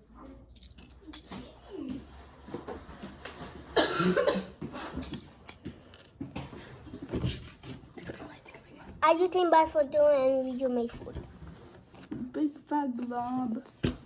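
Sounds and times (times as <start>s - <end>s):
person coughing: 3.8s - 4.7s.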